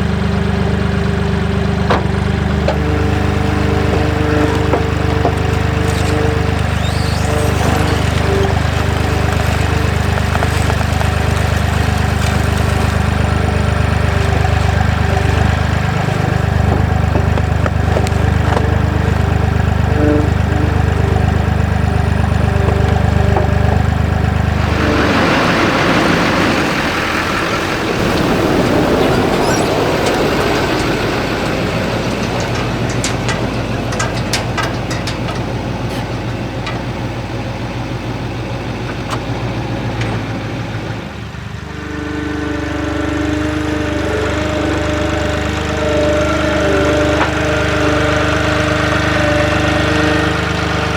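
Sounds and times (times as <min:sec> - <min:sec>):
diesel loader engine running: 0:00.0 - 0:50.9.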